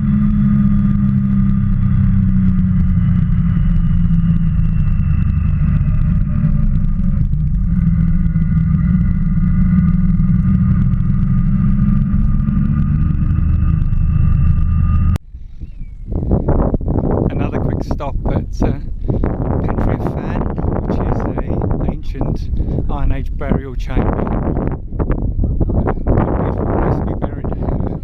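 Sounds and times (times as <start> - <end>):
motorcycle engine running: 0.0 - 15.2, 15.9 - 28.0.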